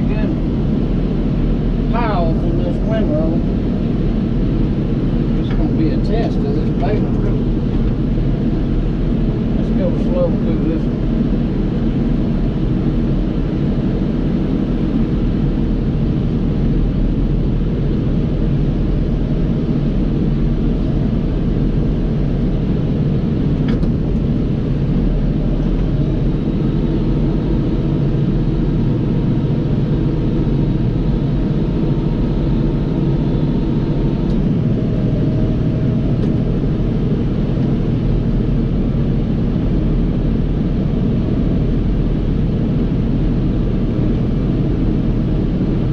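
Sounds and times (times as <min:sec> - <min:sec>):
tractor diesel engine running: 0:13.6 - 0:45.9.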